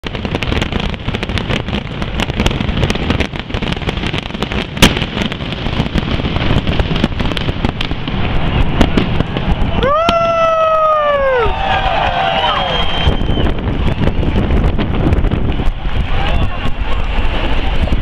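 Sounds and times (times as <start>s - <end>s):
loud firework bang: 0.0s - 11.1s
fireworks crackling and banging: 0.0s - 18.0s.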